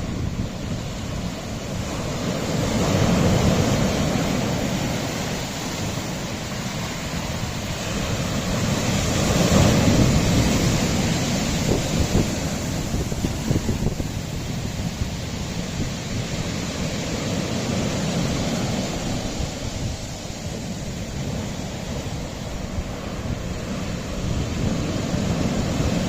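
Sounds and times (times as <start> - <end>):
sea waves against rocky shore: 0.0 - 26.0
wind on microphone: 0.0 - 26.0.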